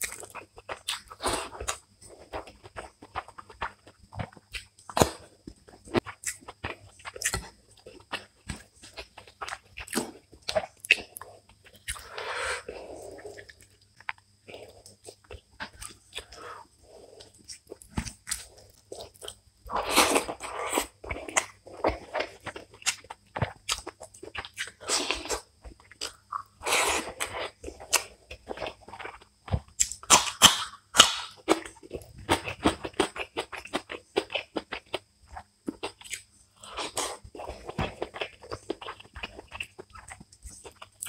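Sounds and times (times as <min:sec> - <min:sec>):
crunching bites: 0:00.0 - 0:14.5, 0:17.4 - 0:35.0
wet chewing: 0:00.0 - 0:41.0.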